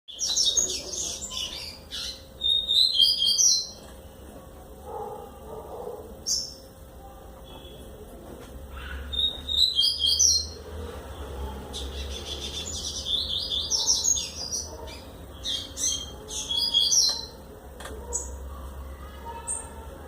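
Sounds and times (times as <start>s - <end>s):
bird singing warbled notes: 9.1s - 10.6s.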